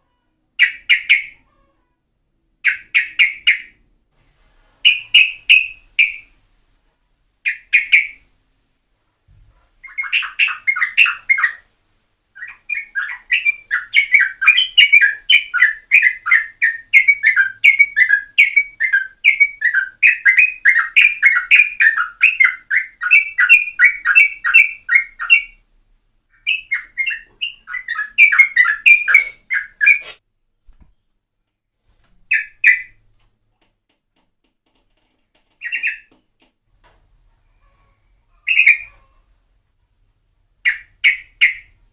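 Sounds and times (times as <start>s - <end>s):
bulbul singing: 4.8s - 6.3s, 9.8s - 11.6s, 12.4s - 25.6s, 26.3s - 30.1s, 35.6s - 36.1s.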